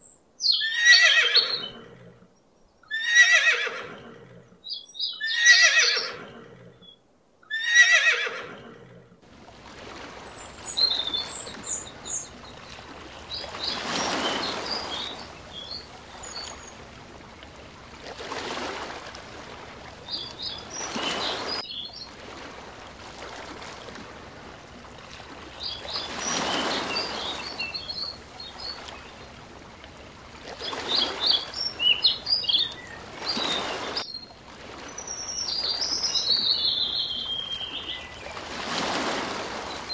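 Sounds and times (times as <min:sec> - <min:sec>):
horse whinnying: 0:00.6 - 0:02.1, 0:02.9 - 0:04.4, 0:05.2 - 0:06.8, 0:07.5 - 0:09.0
surf washing in: 0:08.0 - 0:39.9.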